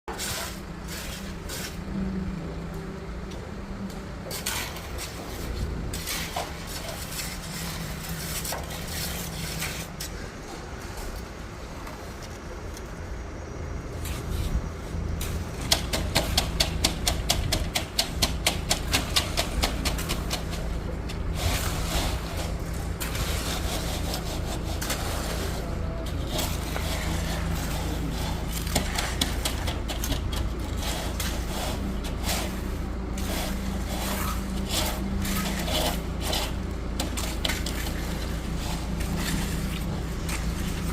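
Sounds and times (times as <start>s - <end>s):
shovels scraping wet concrete: 0.1s - 1.9s, 4.2s - 11.2s, 14.0s - 40.9s
low engine hum: 0.2s - 9.3s.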